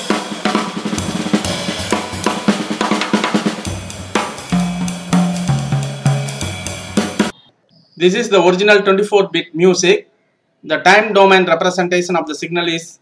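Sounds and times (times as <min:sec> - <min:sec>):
drum kit beat: 0:00.0 - 0:07.4
bass line: 0:01.0 - 0:07.3.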